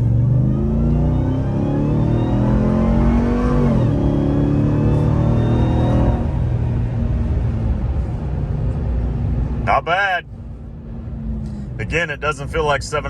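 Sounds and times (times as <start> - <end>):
truck engine at full throttle: 0.0 - 13.0.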